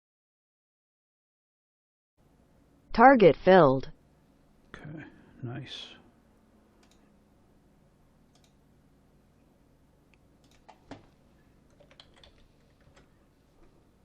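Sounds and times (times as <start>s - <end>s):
keyboard and mouse clicks: 6.8s - 7.1s, 8.3s - 8.6s, 10.4s - 13.1s.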